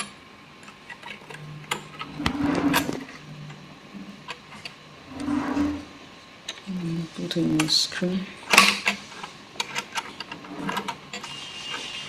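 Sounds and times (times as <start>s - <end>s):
short scraping rubs: 2.0s - 3.1s, 5.1s - 6.0s.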